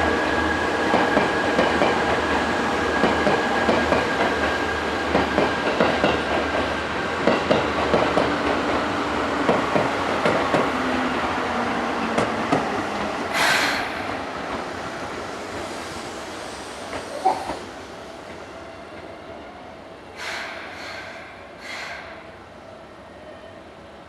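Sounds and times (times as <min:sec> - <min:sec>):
electric train slowing to a stop: 0:00.0 - 0:24.0
short hissing bursts: 0:13.3 - 0:18.0, 0:20.2 - 0:22.4.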